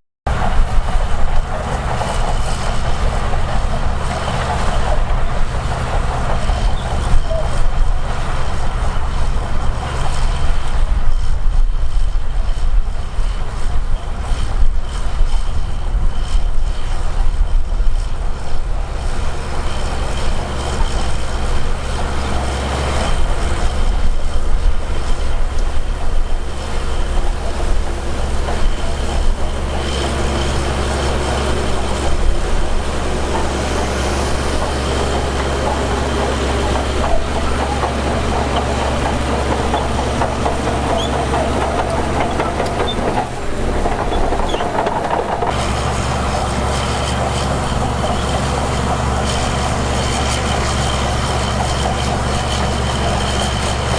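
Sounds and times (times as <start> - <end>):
heavy diesel machinery rumbling: 0.3 - 53.9
machinery knocks and clanks: 18.9 - 53.9.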